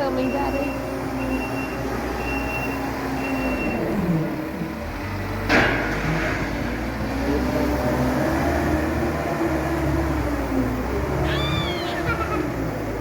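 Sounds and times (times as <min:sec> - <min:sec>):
reversing alarm beeping: 0:00.0 - 0:03.9, 0:11.3 - 0:12.2
farm vehicle engine running: 0:00.0 - 0:13.0.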